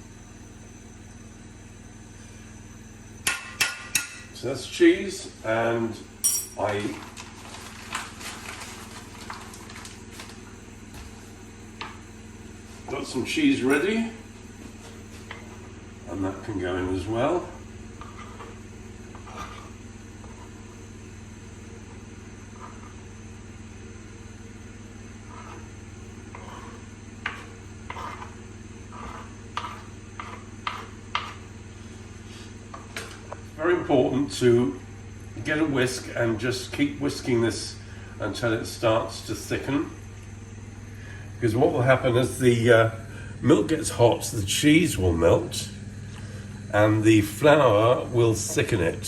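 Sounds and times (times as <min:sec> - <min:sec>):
steady low hum: 0:00.0 - 0:49.0
utensil scraping saucepan: 0:17.5 - 0:20.8, 0:22.5 - 0:23.0, 0:25.2 - 0:31.5.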